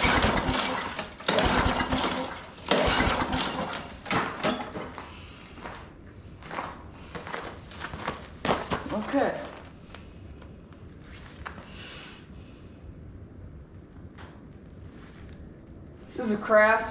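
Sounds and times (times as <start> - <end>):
lawn mower pull-start sputter: 0.0 - 5.2.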